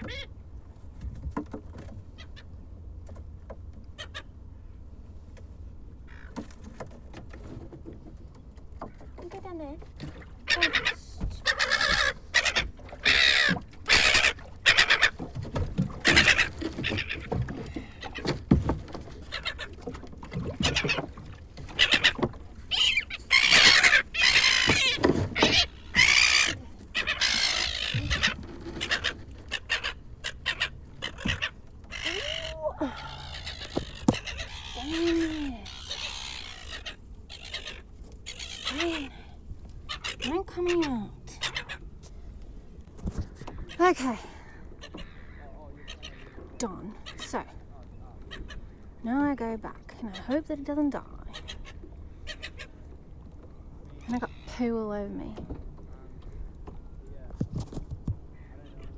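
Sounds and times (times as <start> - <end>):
gulls squawking: 10.4 - 42.0, 43.2 - 56.8, 58.3 - 58.9.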